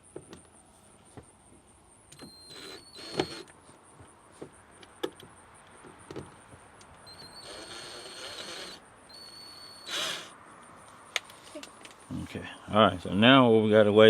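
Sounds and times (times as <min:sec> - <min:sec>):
sharp clicks: 0:02.1 - 0:03.6
small electric motor whining: 0:02.2 - 0:03.5, 0:07.1 - 0:10.3.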